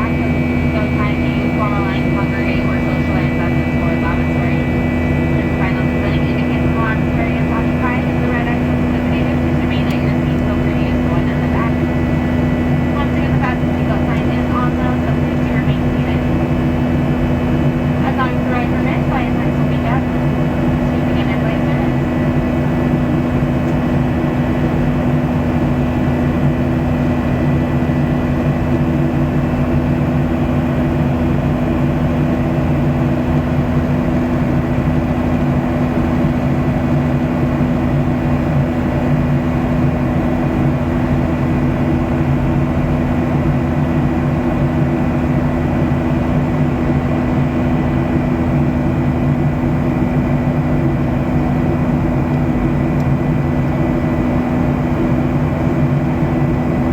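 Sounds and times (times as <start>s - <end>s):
jet engine cabin drone: 0.0s - 56.9s.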